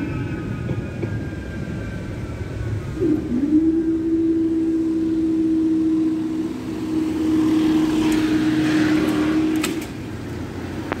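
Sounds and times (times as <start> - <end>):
road vehicle passing: 4.0 - 11.0.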